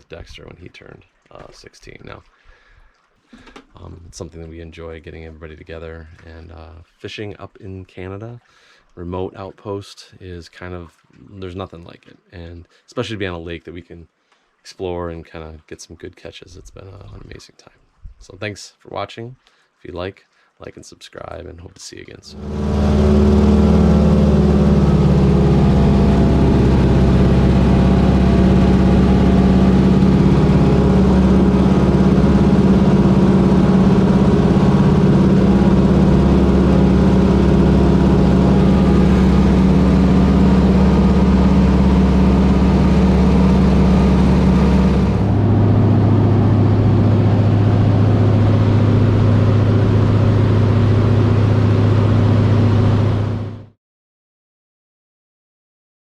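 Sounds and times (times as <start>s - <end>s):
plane engine and propeller drone: 22.3s - 53.6s.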